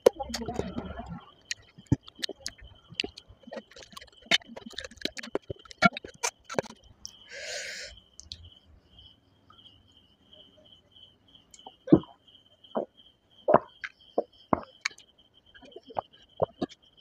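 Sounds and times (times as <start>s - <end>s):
sharp mouth clicks: 0.1s - 7.2s
wet chewing and lip smacks: 0.3s - 7.2s.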